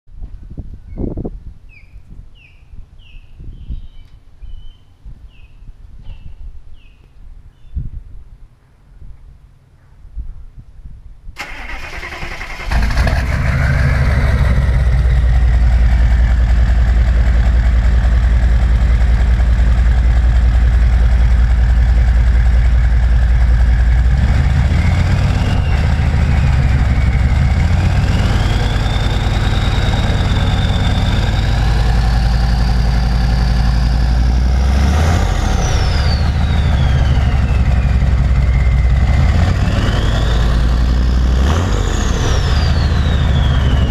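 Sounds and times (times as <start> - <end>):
loud diesel engine running: 11.4 - 43.9.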